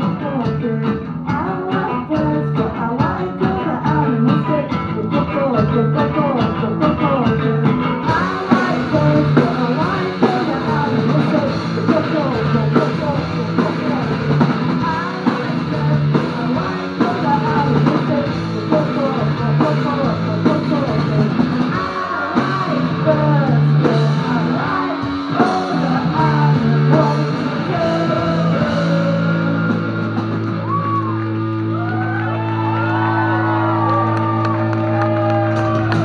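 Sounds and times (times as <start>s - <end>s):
person shouting singing: 0.0s - 14.2s, 14.8s - 36.0s
distorted electric guitar: 0.0s - 36.0s
drums: 0.0s - 36.0s
punk band playing loud: 0.0s - 36.0s
crowd whooping: 29.4s - 36.0s.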